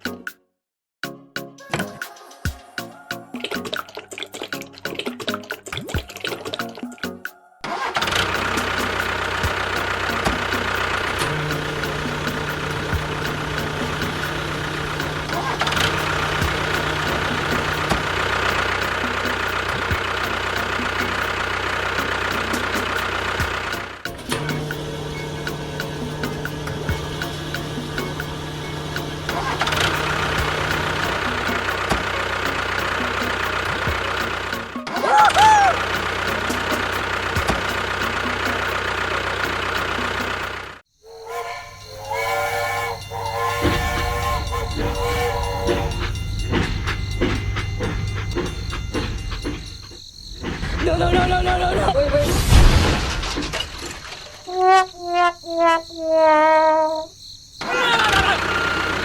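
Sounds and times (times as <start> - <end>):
hissing machine noise: 7.7 - 34.9, 35.6 - 54.5, 57.6 - 59.0
motor humming: 7.8 - 34.9, 35.6 - 52.2, 57.6 - 59.0
whistle-like chord: 24.3 - 34.8, 41.0 - 50.6, 58.4 - 59.0
faint regular ticking: 43.6 - 50.8.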